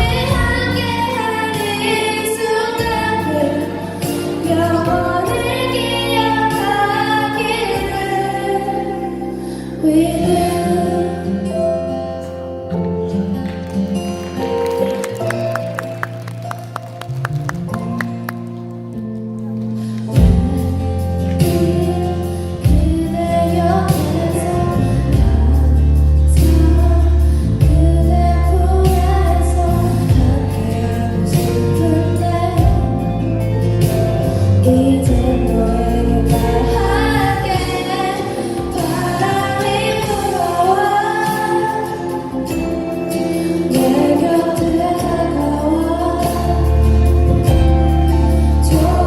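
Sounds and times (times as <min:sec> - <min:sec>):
choir singing gospel music: 0:00.0 - 0:09.6, 0:22.1 - 0:49.0
instrumental accompaniment with bass: 0:00.0 - 0:49.0.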